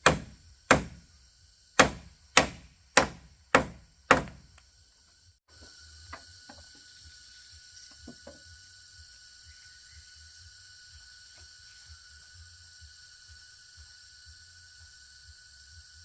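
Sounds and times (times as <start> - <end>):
loud strikes on wood: 0.0 - 1.1, 1.8 - 4.6.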